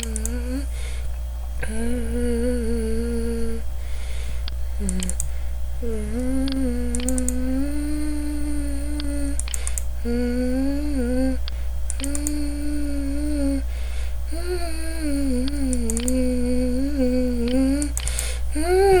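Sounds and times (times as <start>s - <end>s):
faint clicks: 0.0s - 0.4s, 4.4s - 5.3s, 6.2s - 7.4s, 8.9s - 9.9s, 11.4s - 12.4s, 15.4s - 16.3s, 17.4s - 18.3s
person humming: 0.0s - 1.0s, 1.6s - 3.7s, 4.8s - 13.7s, 14.3s - 19.0s
low electrical hum: 0.0s - 19.0s.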